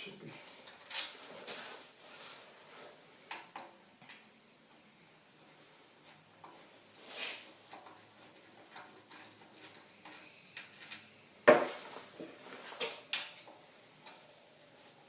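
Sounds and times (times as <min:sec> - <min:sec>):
metal tools clinking: 0:09.1 - 0:11.2, 0:12.8 - 0:13.8.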